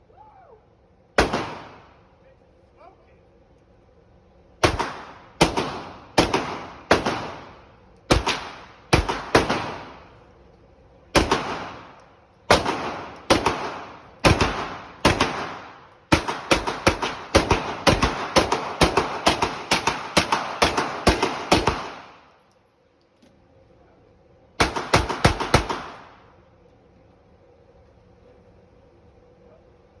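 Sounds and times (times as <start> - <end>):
pistol shots: 1.2 - 2.0, 4.6 - 10.2, 11.1 - 22.3, 24.6 - 26.3.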